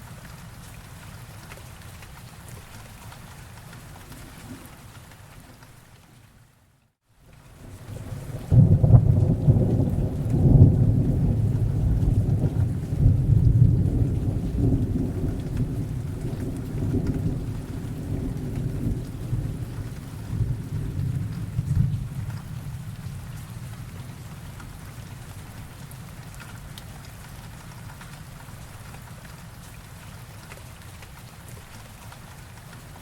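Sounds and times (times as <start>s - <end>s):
steady rain: 0.0s - 33.0s
thunder rumbling: 7.9s - 24.3s.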